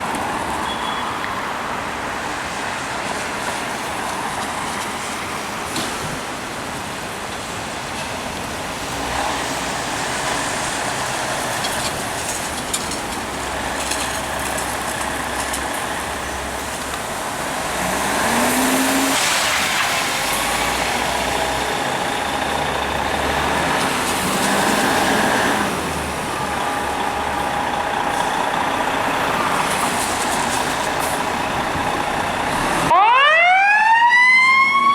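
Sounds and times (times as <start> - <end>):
heavy vehicles passing: 7.4 - 34.9.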